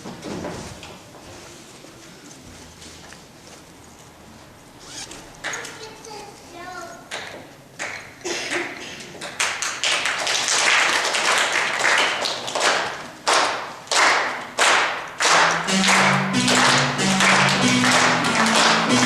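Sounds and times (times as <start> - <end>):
rhythmic hand percussion: 14.4 - 19.0.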